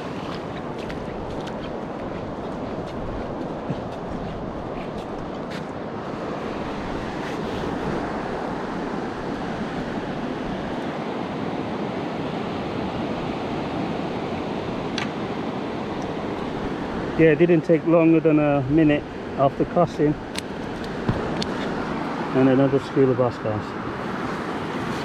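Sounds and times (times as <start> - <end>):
wind on microphone: 0.0 - 17.2
surf washing on shore: 0.0 - 25.0.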